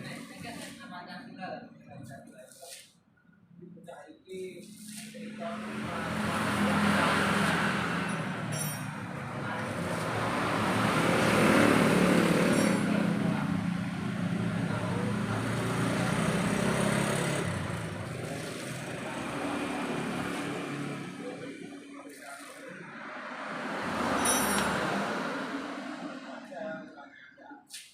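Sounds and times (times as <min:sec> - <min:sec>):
motorcycle engine running: 0:09.3 - 0:21.4.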